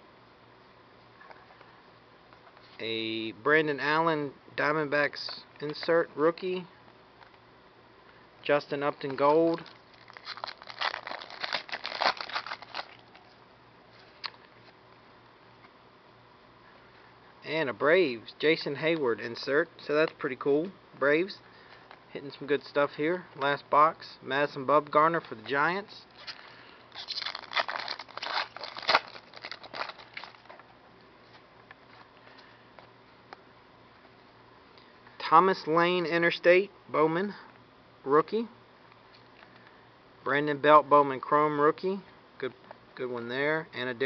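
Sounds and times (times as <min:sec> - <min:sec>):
cards and wrapper rustling: 0:08.8 - 0:13.4, 0:26.1 - 0:32.1.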